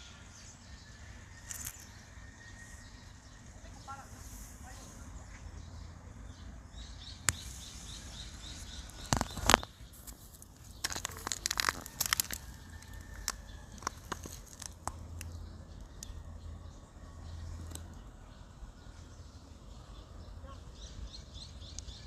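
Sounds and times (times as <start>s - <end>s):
small bird chirping: 0.0s - 22.0s
sharp crackling rustles: 7.2s - 15.4s.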